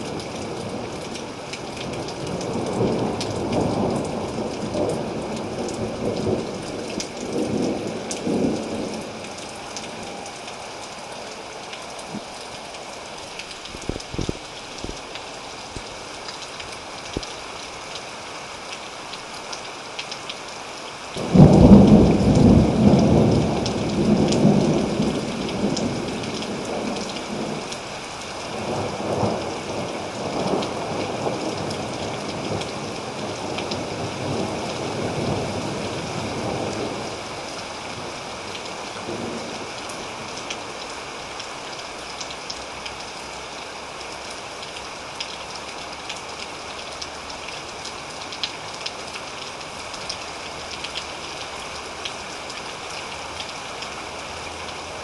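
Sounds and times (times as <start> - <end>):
rain pattering: 0.0 - 55.0
thunder clap rolling: 21.2 - 27.6.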